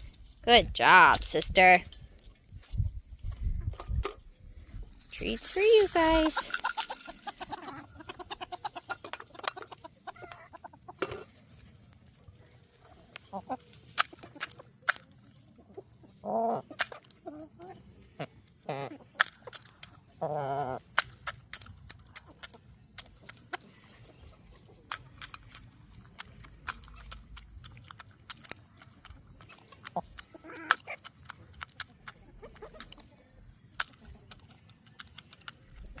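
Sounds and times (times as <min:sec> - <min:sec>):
chickens clucking: 0:05.2 - 0:36.0
chicken wavering calls: 0:06.2 - 0:11.0.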